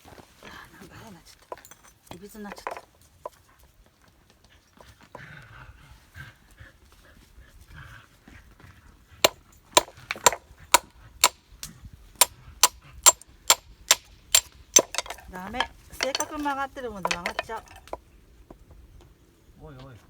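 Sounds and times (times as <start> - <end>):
sharp knocks: 9.8 - 11.4, 12.6 - 18.0.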